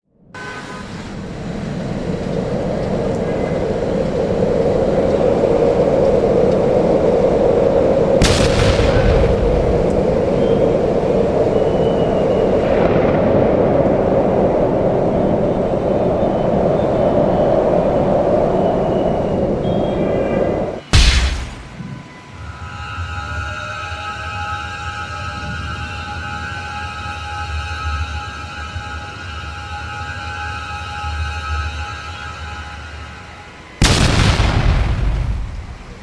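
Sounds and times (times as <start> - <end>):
faint car horn toots: 0.4 - 1.1.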